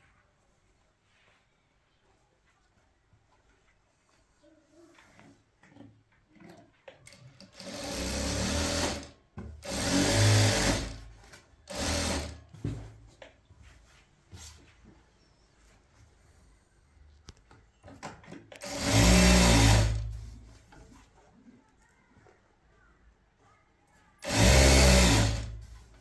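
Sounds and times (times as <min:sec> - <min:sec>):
small machine motor running: 0:07.4 - 0:11.1, 0:11.7 - 0:12.4, 0:18.6 - 0:20.2, 0:24.2 - 0:25.7.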